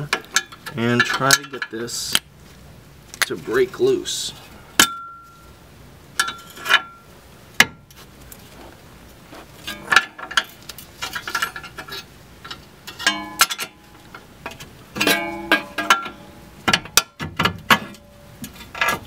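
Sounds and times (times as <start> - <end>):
metallic ringing clang: 4.8 - 5.5, 12.9 - 14.0, 15.0 - 19.0.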